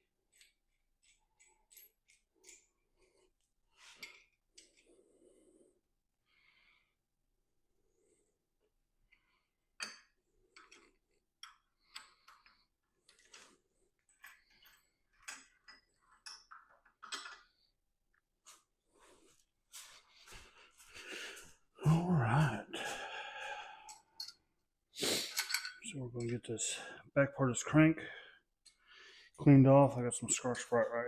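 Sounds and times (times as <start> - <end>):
tools clicking and scraping: 0.2 - 4.9, 9.8 - 17.6, 23.9 - 24.5, 25.2 - 26.4.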